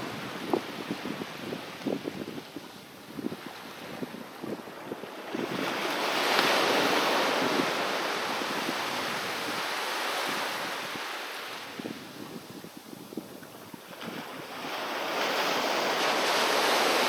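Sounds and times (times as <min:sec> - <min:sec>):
wave breaking on beach: 0:03.2 - 0:12.7, 0:13.7 - 0:17.0.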